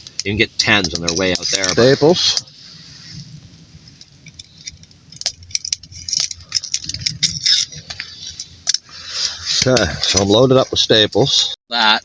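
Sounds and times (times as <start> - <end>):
staple gun metal clicks and rattles: 4.2 - 7.8.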